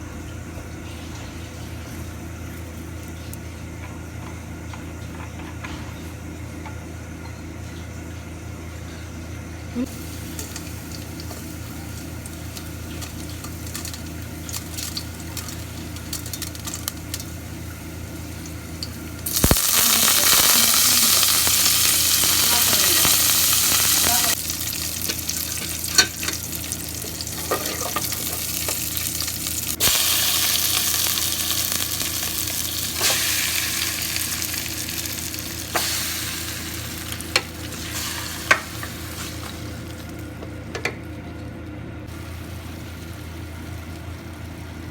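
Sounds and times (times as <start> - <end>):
steady low hum: 0.0 - 44.9
food sizzling in oil: 9.9 - 40.4, 42.1 - 44.9.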